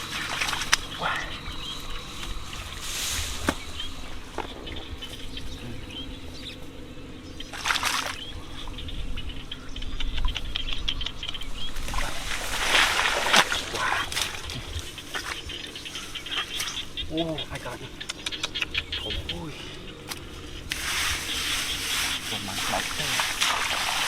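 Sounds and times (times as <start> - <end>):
water splashing and trickling: 0.0 - 1.4, 7.5 - 8.4, 11.8 - 15.6, 20.7 - 24.0.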